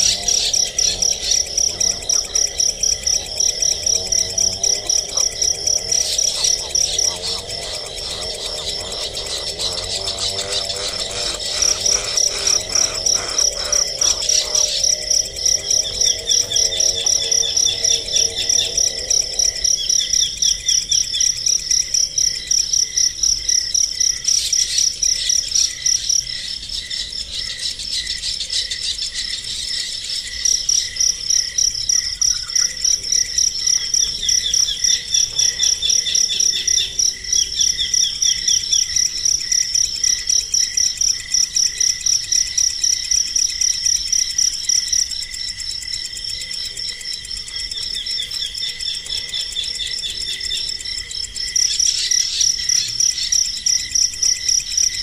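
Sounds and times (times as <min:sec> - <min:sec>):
rhythmic high-pitched chirping: 0:00.0 - 0:21.2.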